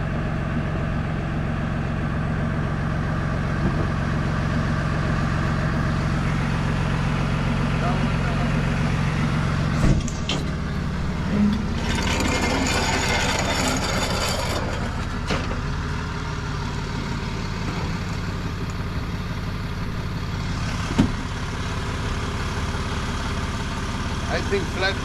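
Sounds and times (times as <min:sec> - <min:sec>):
truck engine running: 0:00.0 - 0:25.0
sharp clunk: 0:09.8 - 0:10.6, 0:20.9 - 0:21.2.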